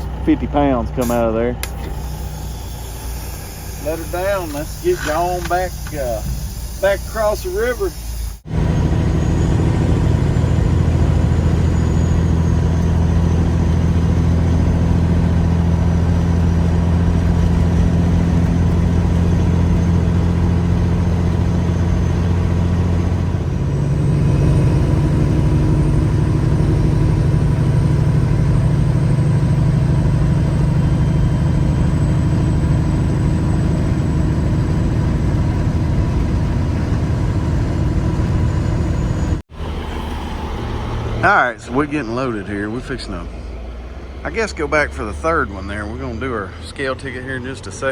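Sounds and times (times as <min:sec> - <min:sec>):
diesel truck engine running: 0:00.0 - 0:47.9.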